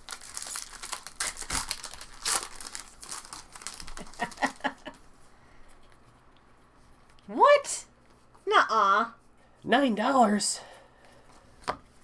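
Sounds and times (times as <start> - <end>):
card pack wrappers crinkling: 0.0 - 5.0.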